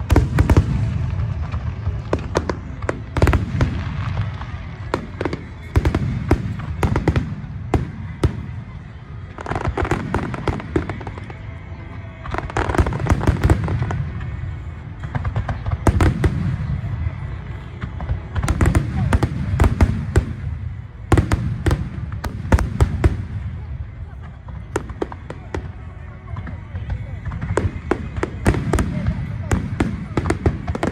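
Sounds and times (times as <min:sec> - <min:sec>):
fireworks cracks and crackles: 0:00.0 - 0:30.9.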